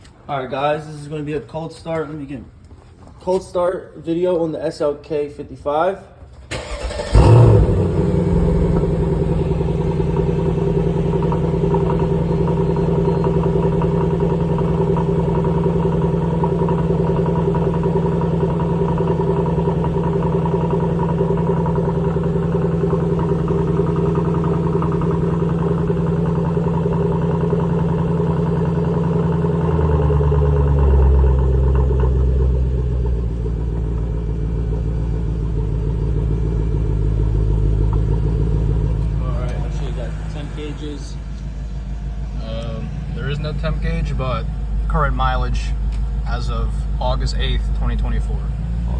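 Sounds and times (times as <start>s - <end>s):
engine cranking: 6.4s - 14.3s
car engine idling: 6.4s - 48.9s.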